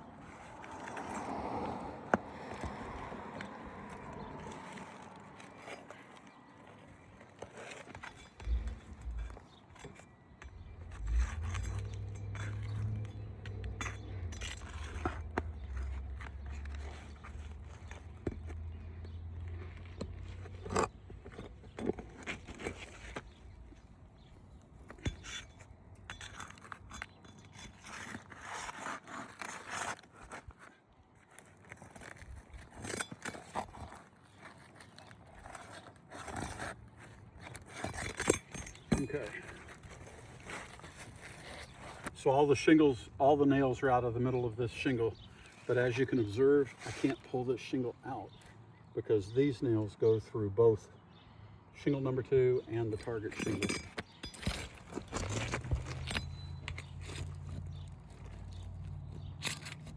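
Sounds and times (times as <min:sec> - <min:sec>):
metal tools scraping shingles: 0:03.9 - 0:23.4, 0:24.9 - 0:30.8, 0:31.4 - 0:48.5, 0:52.2 - 0:58.7, 0:59.3 - 0:59.9.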